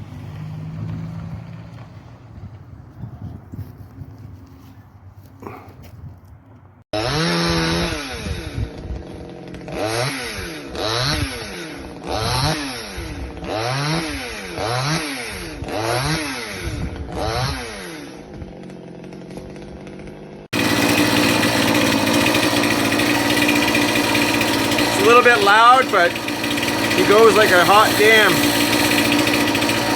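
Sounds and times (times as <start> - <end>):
chainsaw engine revving: 7.0 - 29.9.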